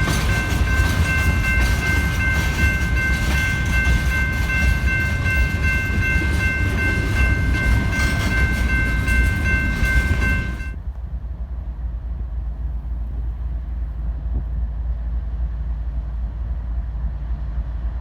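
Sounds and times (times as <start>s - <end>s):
train wheels clacking over rail joints: 0.0s - 10.8s.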